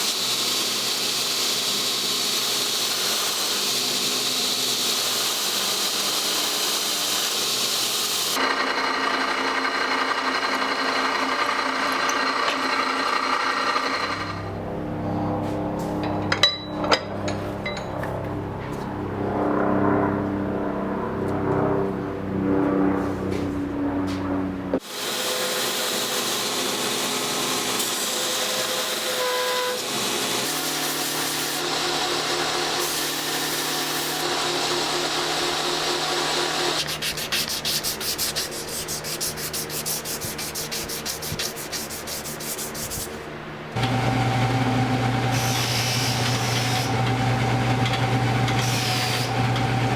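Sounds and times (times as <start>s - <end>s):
sanding and rubbing a knife: 35.8s - 43.3s
steady machine hum: 42.5s - 49.9s.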